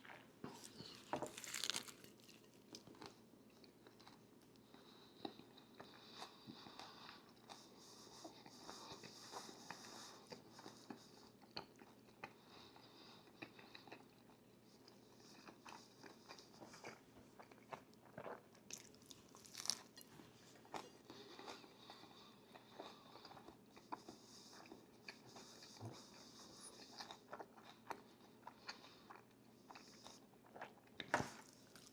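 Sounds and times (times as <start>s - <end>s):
crunchy food chewing: 0.0s - 4.7s, 13.3s - 31.9s.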